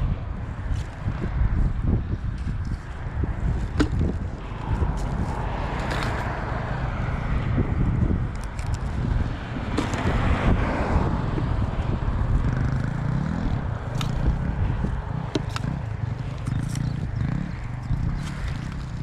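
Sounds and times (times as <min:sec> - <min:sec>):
road traffic rumble: 0:00.0 - 0:19.0
car passing by: 0:04.4 - 0:08.2, 0:09.3 - 0:12.8.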